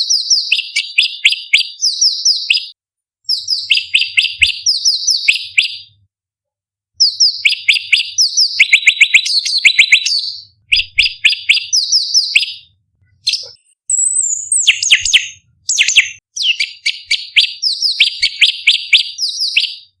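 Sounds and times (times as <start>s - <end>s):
bird singing sharp high notes: 3.3s - 6.0s, 7.0s - 20.0s.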